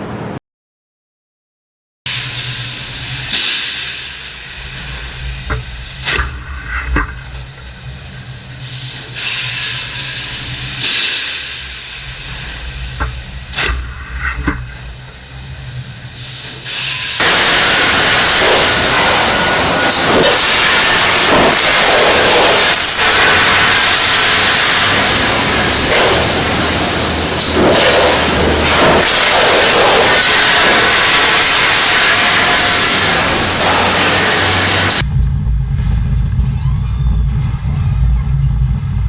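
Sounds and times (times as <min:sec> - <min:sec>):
machinery humming: 0:02.1 - 0:39.0
air hissing: 0:14.8 - 0:35.0
loud rushing noise: 0:17.1 - 0:39.0.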